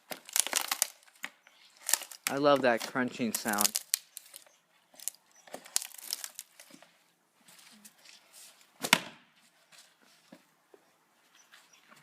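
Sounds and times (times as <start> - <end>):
axe striking log: 8.8 - 9.3.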